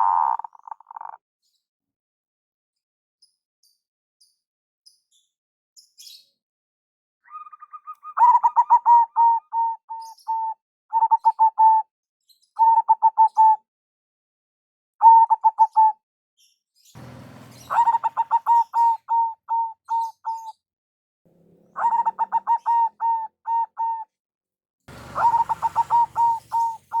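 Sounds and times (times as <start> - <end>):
doves cooing: 0.0 - 1.2, 7.3 - 11.8, 17.0 - 20.4, 21.3 - 24.0, 24.9 - 27.0.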